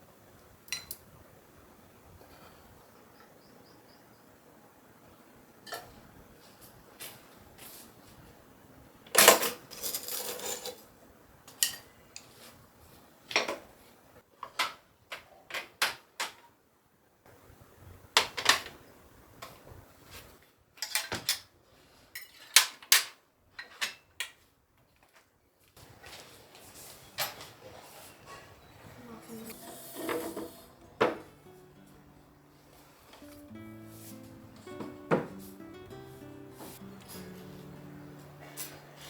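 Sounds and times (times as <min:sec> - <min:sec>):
kitchen items clattering: 0:09.2 - 0:10.9, 0:29.4 - 0:31.4
kitchen items knocking and clinking: 0:29.9 - 0:31.4.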